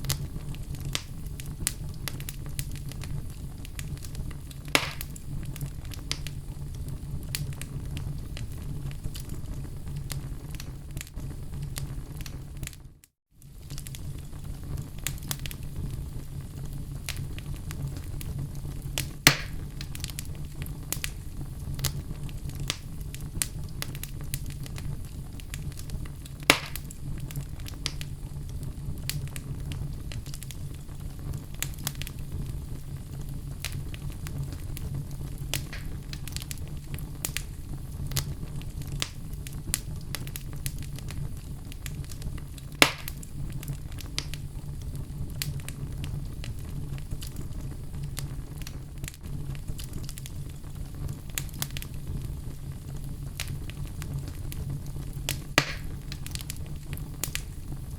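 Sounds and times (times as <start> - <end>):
loud fire pops: 0.0 - 57.9
wood fire crackling: 0.0 - 57.9
low steady rumble: 13.6 - 57.9.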